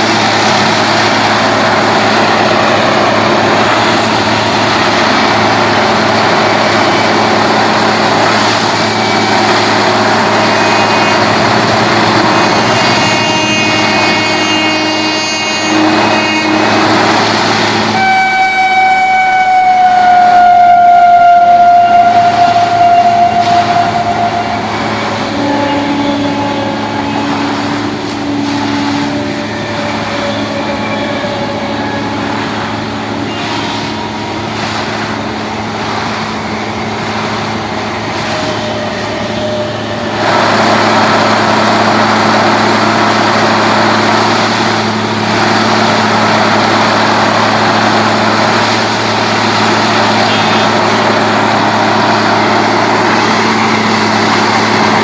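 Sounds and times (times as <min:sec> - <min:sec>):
train rumbling: 0:00.0 - 0:55.0
train horn blast: 0:01.7 - 0:35.9, 0:36.5 - 0:44.5, 0:45.8 - 0:55.0.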